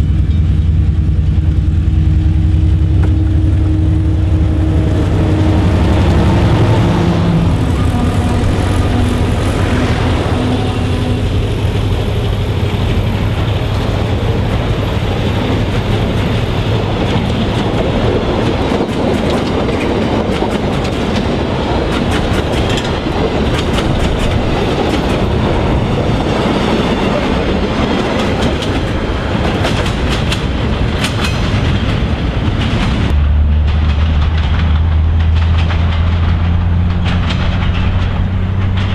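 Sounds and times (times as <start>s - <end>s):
diesel engine drone: 0.0s - 29.6s, 33.0s - 38.9s
wagons rumbling: 0.0s - 38.9s
wheels clicking over rail joints: 2.6s - 38.9s.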